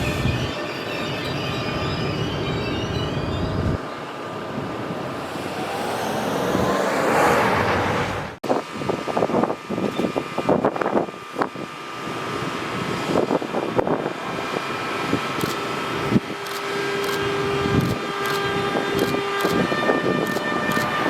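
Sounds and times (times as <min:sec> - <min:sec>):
train running on rails: 0:00.0 - 0:08.4, 0:13.9 - 0:21.0
wind gusts on microphone: 0:04.9 - 0:11.0.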